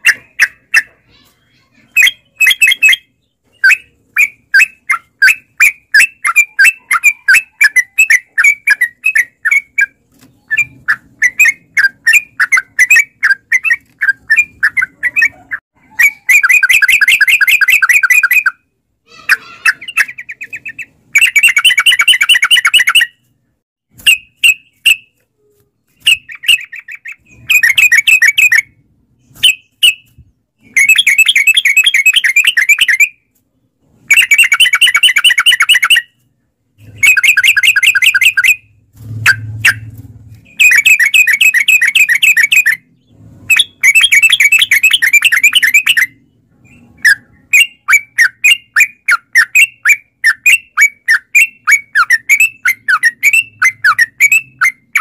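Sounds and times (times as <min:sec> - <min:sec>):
bulbul singing chattering phrases: 0:00.0 - 0:23.1.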